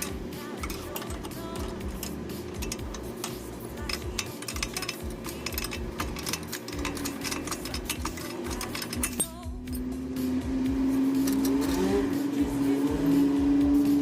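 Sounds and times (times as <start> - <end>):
hand tools clinking on metal: 0.0 - 9.9
low steady hum: 0.0 - 14.0.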